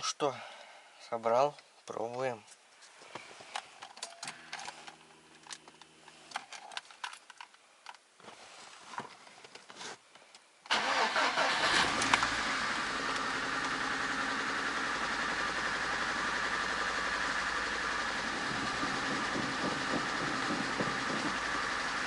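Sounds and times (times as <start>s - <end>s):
car engine starting and running: 10.7s - 22.0s.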